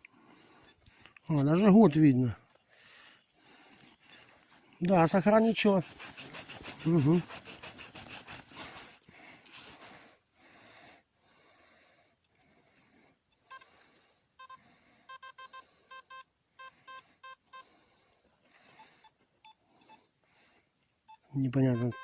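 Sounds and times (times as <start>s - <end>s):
faint rubbing: 2.5s - 10.2s
metal detector beeps: 13.3s - 13.8s, 14.4s - 17.7s, 21.1s - 22.0s.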